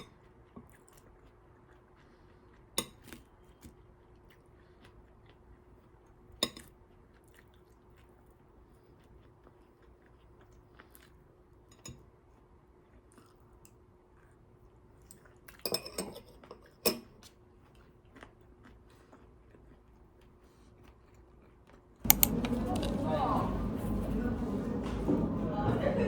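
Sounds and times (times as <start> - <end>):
cutlery and dishes clinking: 15.6 - 17.1, 22.1 - 26.0
faint steady hum: 22.0 - 26.0
dishes clattering: 22.1 - 26.0.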